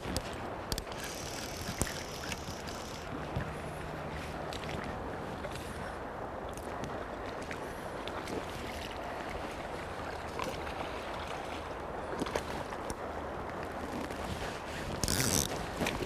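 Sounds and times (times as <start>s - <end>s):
river water flowing: 0.0s - 16.0s
wind on microphone: 0.0s - 16.0s
faint clicks: 0.1s - 3.5s.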